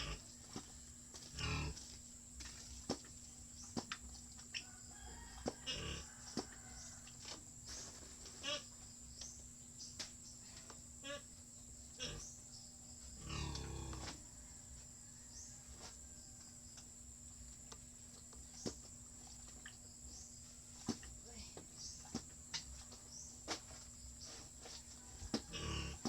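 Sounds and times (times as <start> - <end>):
farm animals calling: 8.3 - 8.8, 11.0 - 11.4, 12.0 - 12.5, 25.4 - 26.0.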